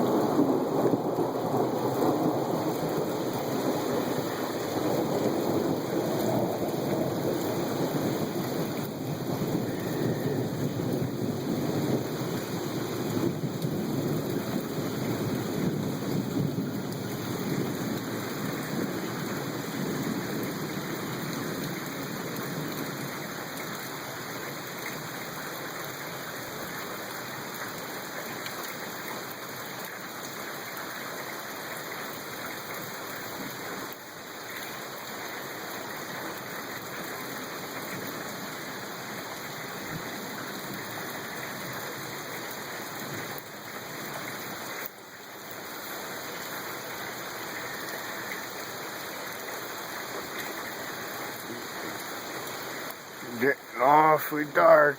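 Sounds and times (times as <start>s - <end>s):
low rumble of thunder: 0.0s - 23.1s
steady rain falling: 0.0s - 54.9s.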